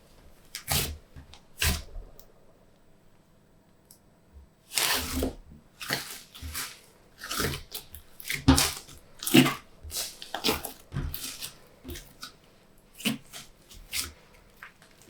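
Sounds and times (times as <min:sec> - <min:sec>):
slime squelching and popping: 0:04.7 - 0:15.0.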